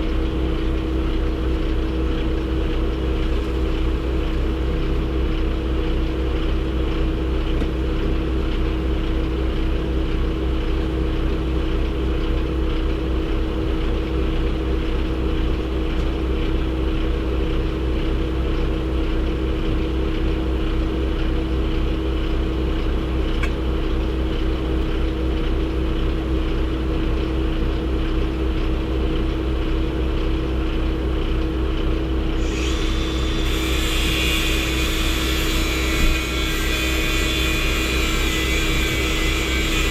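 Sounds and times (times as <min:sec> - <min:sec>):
truck engine and road drone: 0:00.0 - 0:39.9
steady hum: 0:32.3 - 0:39.9
high hiss: 0:32.4 - 0:38.8.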